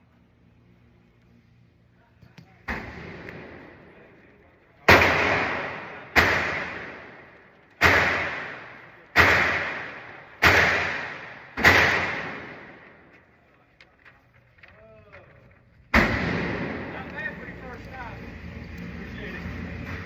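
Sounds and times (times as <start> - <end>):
pistol shots: 2.7 - 4.0, 4.8 - 13.1, 15.9 - 17.1.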